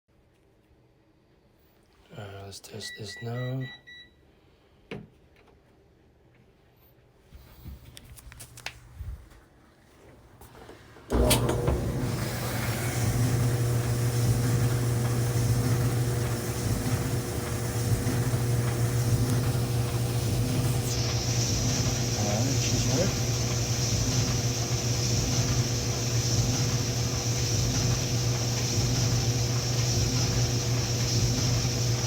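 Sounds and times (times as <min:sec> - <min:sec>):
clothes dryer humming: 0:09.9 - 0:32.0
dryer clicks: 0:11.1 - 0:22.2.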